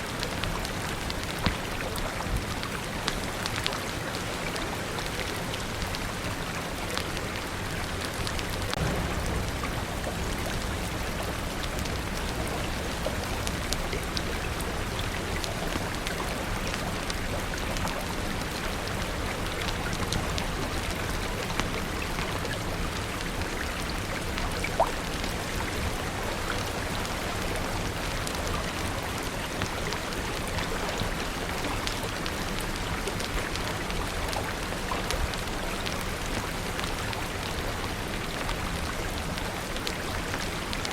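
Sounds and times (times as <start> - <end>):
raindrop ticks: 0.0 - 40.9
steady rain hiss: 0.0 - 40.9.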